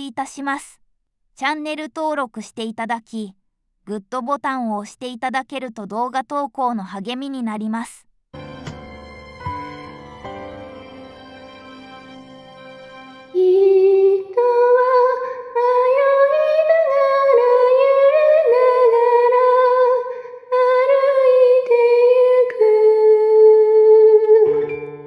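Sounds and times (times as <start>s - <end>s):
instrumental music: 8.4s - 14.5s.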